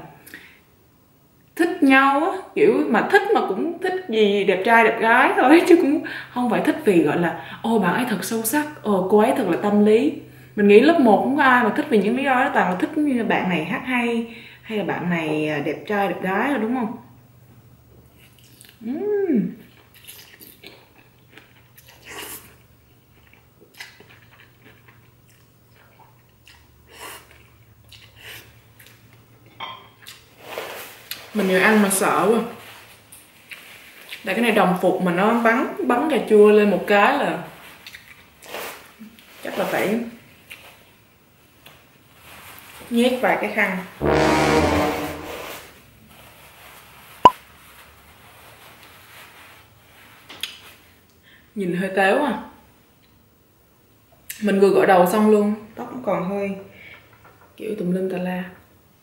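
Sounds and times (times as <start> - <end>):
paper tissues rustling: 46.1 - 51.0.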